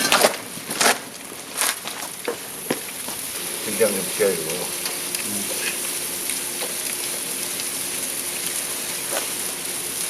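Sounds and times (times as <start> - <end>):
meat sizzling on hot metal: 0.0 - 10.0.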